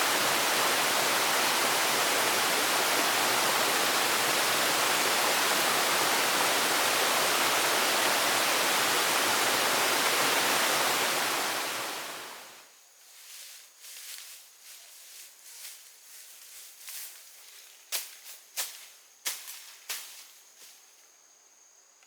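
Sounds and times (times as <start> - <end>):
water rushing: 0.0 - 12.6.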